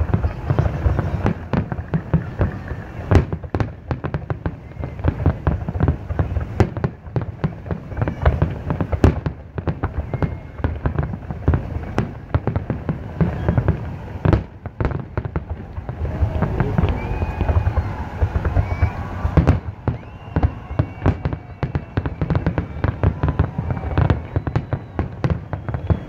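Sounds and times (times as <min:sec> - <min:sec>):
fireworks bangs and pops: 0:00.0 - 0:26.0
low rumble: 0:15.6 - 0:20.3.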